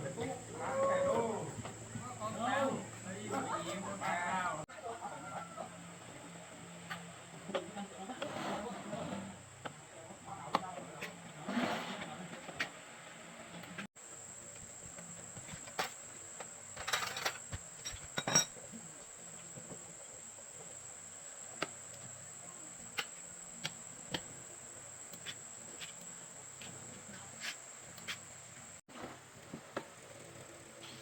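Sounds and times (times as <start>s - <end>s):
high-pitched insect trill: 14.0s - 28.4s.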